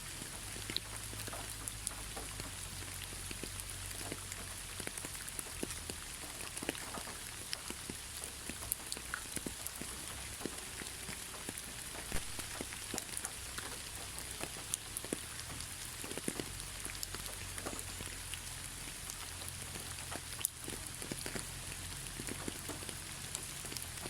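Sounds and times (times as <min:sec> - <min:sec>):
rain drops tapping on a surface: 0:00.0 - 0:24.0.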